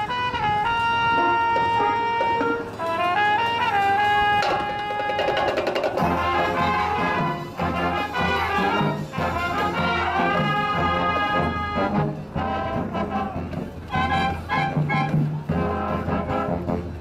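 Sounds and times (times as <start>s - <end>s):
marching band brass playing: 0.0s - 17.0s
percussion rattle: 4.4s - 8.3s.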